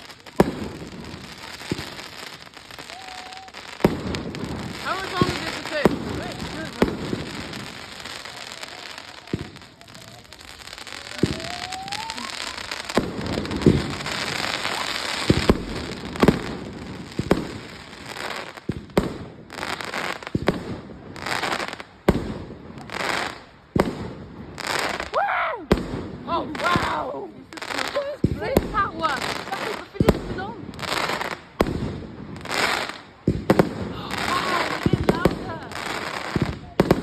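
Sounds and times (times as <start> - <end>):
rising firework whistle: 0.0 - 18.6
fireworks bangs with crackling: 0.0 - 37.0.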